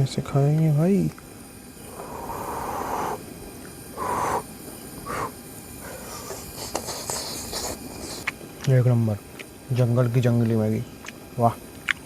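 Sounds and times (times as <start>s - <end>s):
man breathing while eating: 1.8s - 3.2s, 3.9s - 8.3s.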